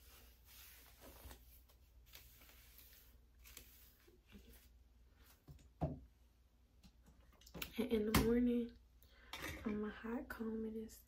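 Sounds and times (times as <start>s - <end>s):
soft rustles: 0.0s - 5.6s.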